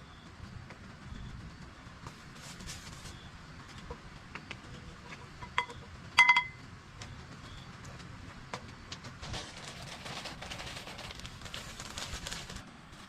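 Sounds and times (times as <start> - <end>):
hard objects clinking: 5.4 - 6.6.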